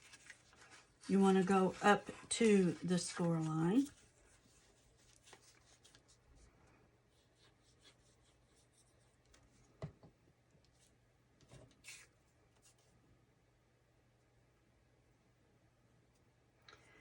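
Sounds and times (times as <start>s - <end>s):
paper rubbing and rustling: 0.0s - 6.5s, 11.5s - 12.9s.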